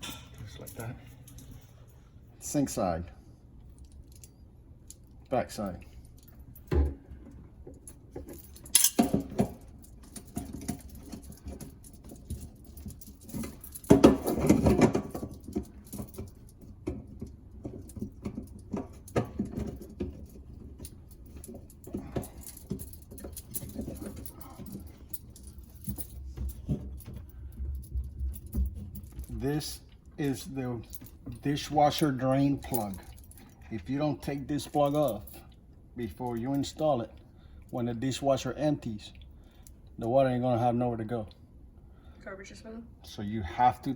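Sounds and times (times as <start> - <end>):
small clicks and knocks of parts: 3.6 - 30.2.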